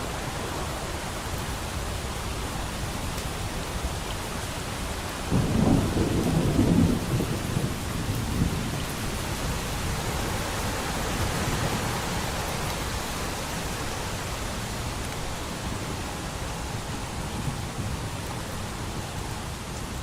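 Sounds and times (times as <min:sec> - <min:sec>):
steady rain: 0:00.0 - 0:20.0
distant thunder rolling: 0:05.3 - 0:09.6.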